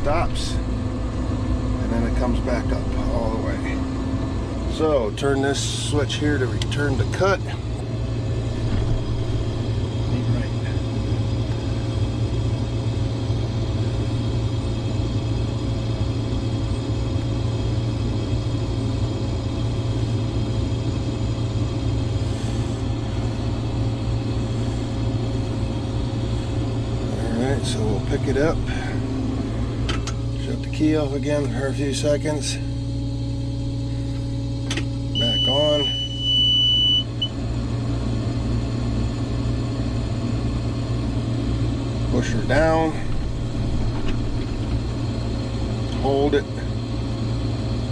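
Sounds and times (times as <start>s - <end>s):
diesel engine drone: 0.0s - 47.9s
engine whine: 0.0s - 47.9s
low machine hum: 0.0s - 47.9s
high-pitched electronic warning tone: 35.1s - 37.4s
short beep: 35.2s - 37.3s.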